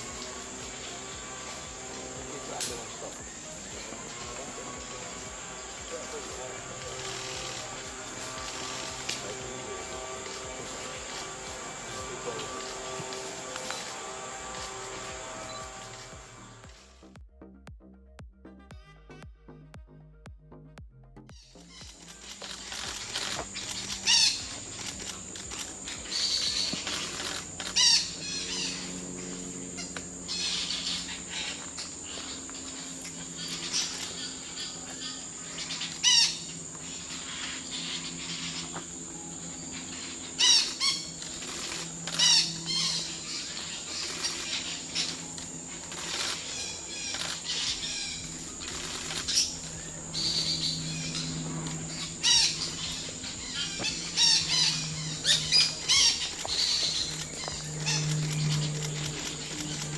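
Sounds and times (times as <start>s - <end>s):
high insect drone: 0.0s - 17.2s, 21.4s - 59.9s
parrots chirping: 21.4s - 38.8s, 39.6s - 59.9s.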